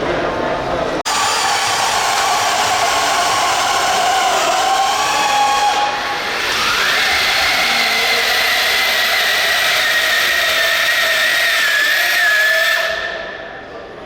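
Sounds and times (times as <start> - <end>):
electric motor whining: 1.1 - 12.1.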